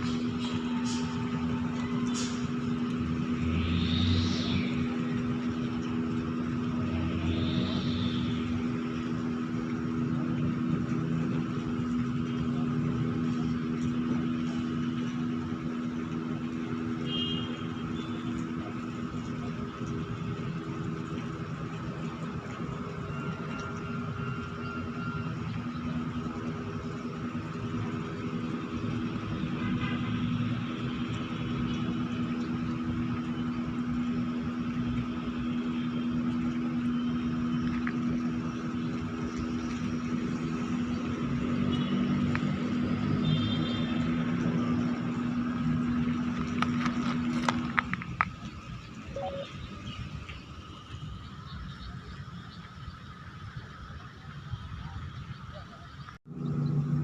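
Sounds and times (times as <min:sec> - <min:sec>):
winch engine droning: 0:00.0 - 0:57.0.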